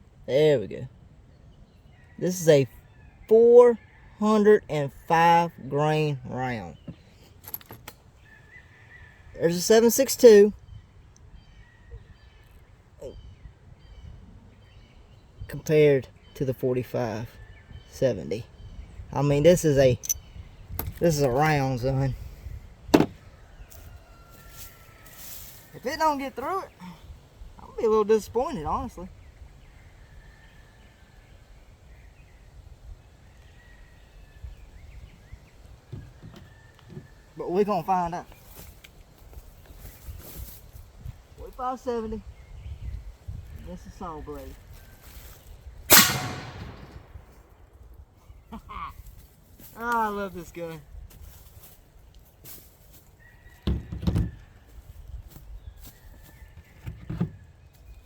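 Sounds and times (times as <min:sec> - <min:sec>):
rifle lever metallic clacks: 0:45.9 - 0:47.0.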